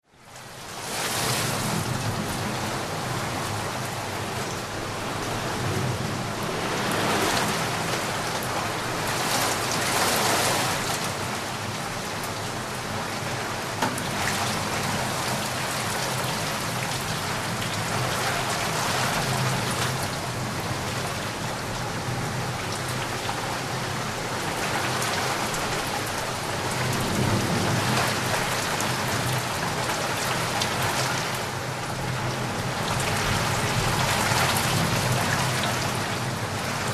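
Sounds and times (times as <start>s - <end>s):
heavy rain falling: 0.0s - 36.9s.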